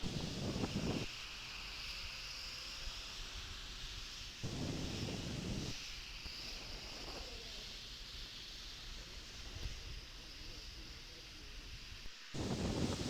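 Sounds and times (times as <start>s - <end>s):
wind buffeting microphone: 0.0s - 1.1s, 12.4s - 13.0s
steady hiss: 0.0s - 13.0s.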